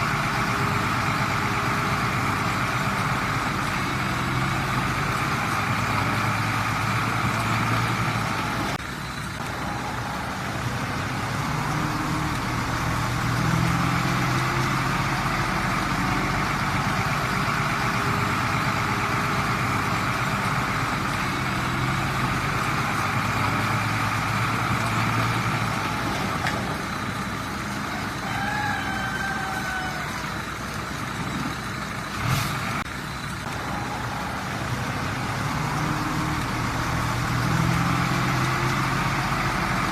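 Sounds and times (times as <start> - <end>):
diesel machinery engine running: 0.0 - 39.9.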